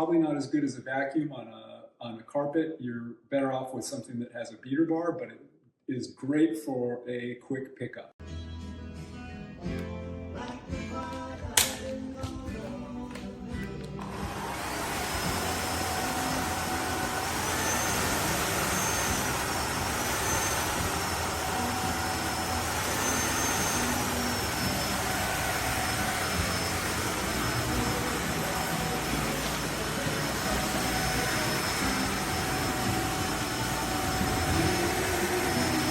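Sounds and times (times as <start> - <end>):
floor vacuum motor whining: 13.1 - 35.9.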